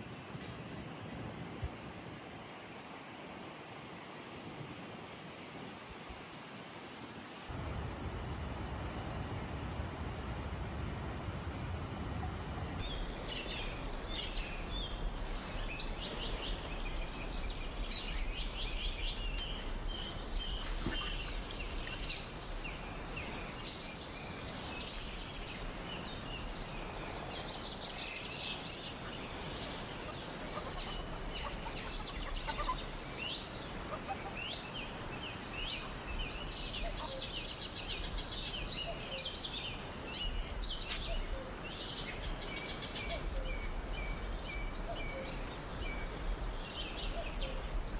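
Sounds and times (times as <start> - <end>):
outdoor background noise: 0.0 - 47.9
birds chirping and trilling: 12.8 - 47.9.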